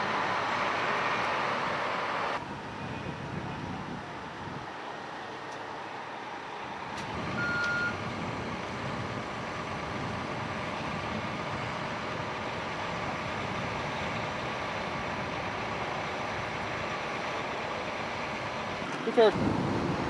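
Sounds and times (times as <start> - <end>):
truck engines idling: 0.0 - 20.0
short high beep: 7.4 - 8.0.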